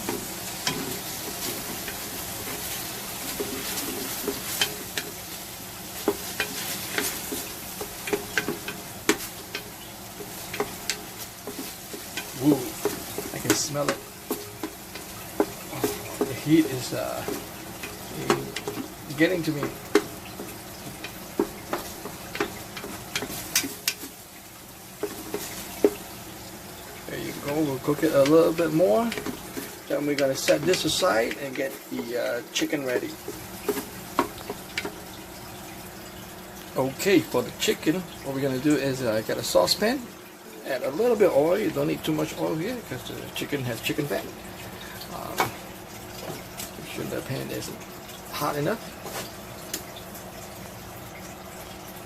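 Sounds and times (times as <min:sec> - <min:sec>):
utensil scraping a pot: 0:00.0 - 0:24.2, 0:26.8 - 0:35.2
food sizzling in hot oil: 0:00.0 - 0:52.0.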